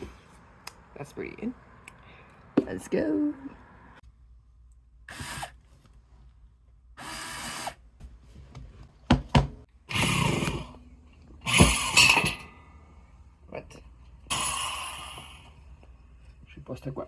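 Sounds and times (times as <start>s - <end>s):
power drill bursts: 5.1s - 5.6s, 7.0s - 7.8s, 11.4s - 12.2s.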